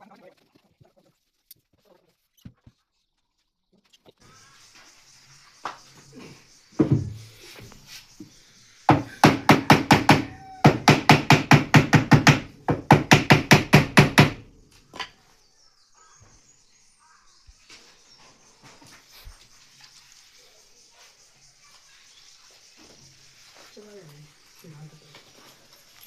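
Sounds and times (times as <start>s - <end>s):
rapid sharp knocks: 8.9s - 14.4s.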